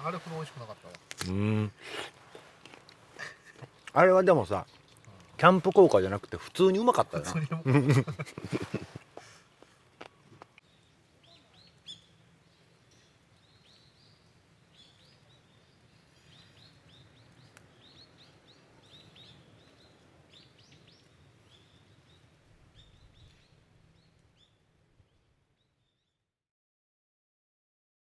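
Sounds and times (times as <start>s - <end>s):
faint small-bird chirps: 10.1s - 26.2s.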